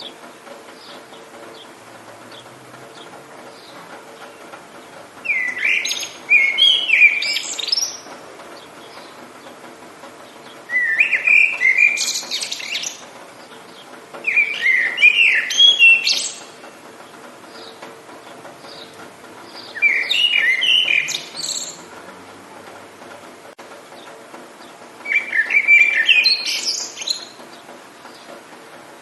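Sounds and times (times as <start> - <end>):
songbird warbling chirps: 5.2 - 9.6, 10.2 - 16.8, 17.5 - 21.9, 24.6 - 28.3.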